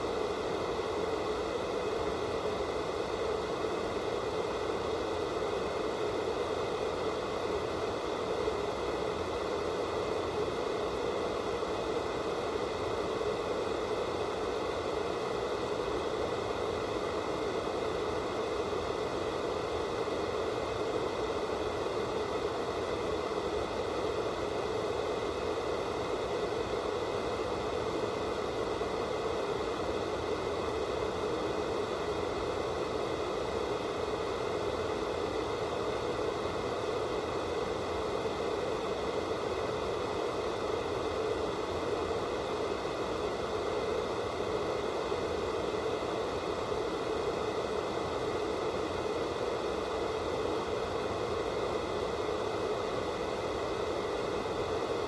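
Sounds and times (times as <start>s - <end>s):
television static hiss: 0.0s - 55.0s.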